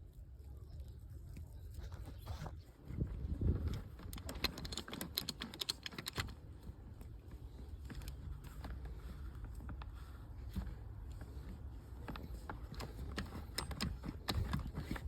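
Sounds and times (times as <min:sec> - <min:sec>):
hand tools clicking and rattling: 0:03.6 - 0:06.5, 0:12.0 - 0:15.0.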